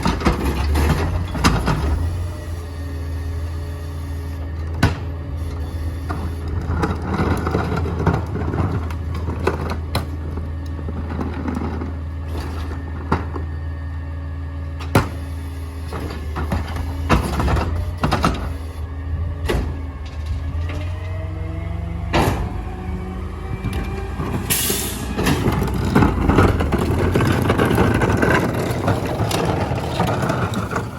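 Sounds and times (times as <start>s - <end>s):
garbage truck engine running: 0.0s - 30.9s
metal clanks and bangs: 22.0s - 22.7s
rough grinding: 25.0s - 30.9s.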